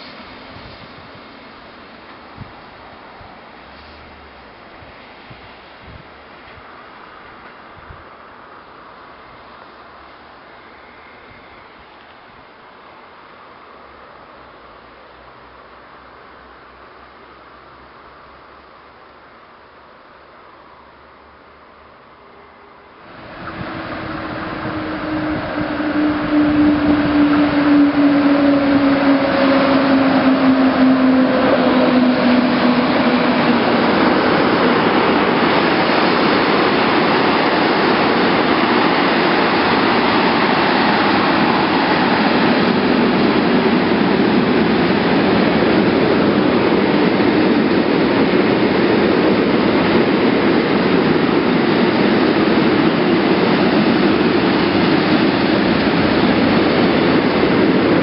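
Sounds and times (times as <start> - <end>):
electric train passing close: 22.2 - 58.0.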